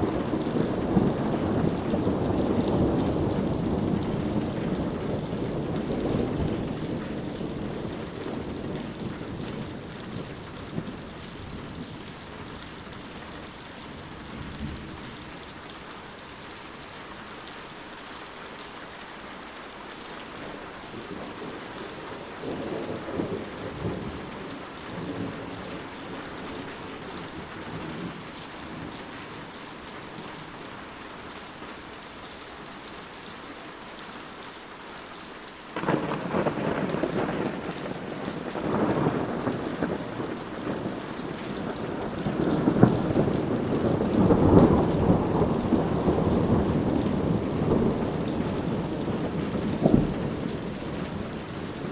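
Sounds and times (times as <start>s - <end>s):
steady rain falling: 0.0s - 51.9s
thunder rolling: 35.8s - 51.9s.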